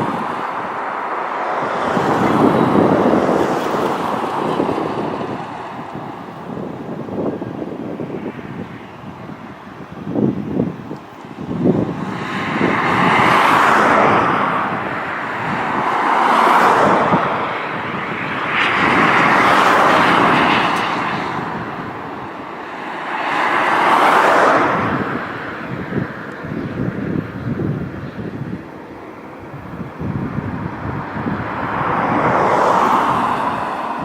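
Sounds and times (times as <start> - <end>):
jet engines rushing: 0.0 - 34.0.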